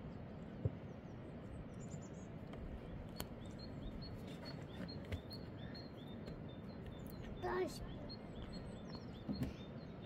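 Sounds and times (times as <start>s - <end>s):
steady outdoor hiss: 0.0s - 10.0s
small bird chirping: 2.9s - 10.0s.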